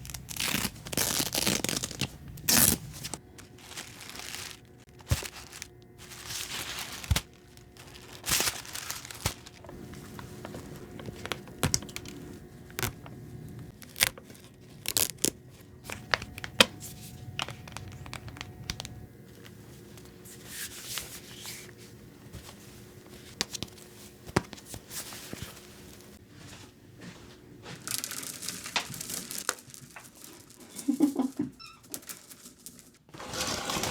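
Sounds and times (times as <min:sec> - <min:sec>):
packaging crinkling and tearing: 0:00.0 - 0:19.6, 0:27.8 - 0:31.1.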